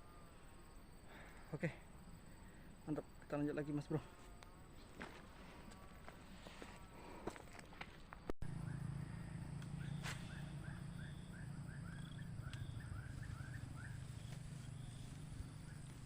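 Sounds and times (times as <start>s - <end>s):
steady low hum: 0.0s - 16.0s
bird chirping rapidly: 9.8s - 15.0s.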